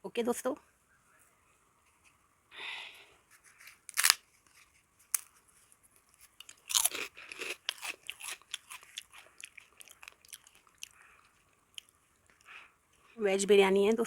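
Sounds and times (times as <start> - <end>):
crunchy chewing of crisp food: 3.3 - 13.2.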